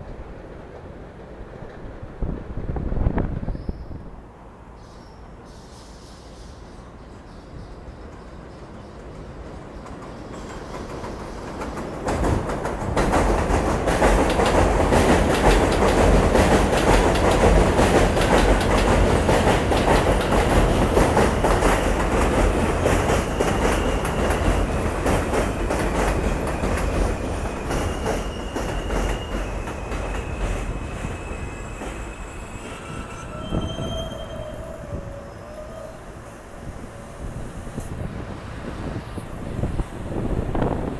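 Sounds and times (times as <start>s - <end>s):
subway train rumble and clatter: 0.0s - 40.9s
high wheel squeals: 26.2s - 37.7s.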